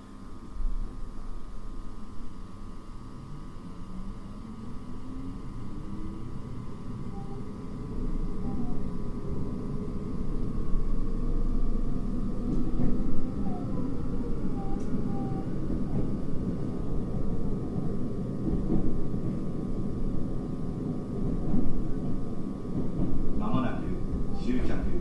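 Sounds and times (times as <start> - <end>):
faint steady whine: 0.0 - 25.0
train wheels rumbling on rails: 8.4 - 25.0.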